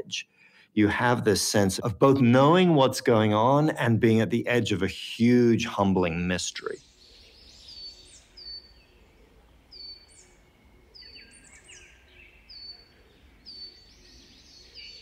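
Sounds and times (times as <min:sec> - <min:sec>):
small bird chirping: 0:06.8 - 0:15.0.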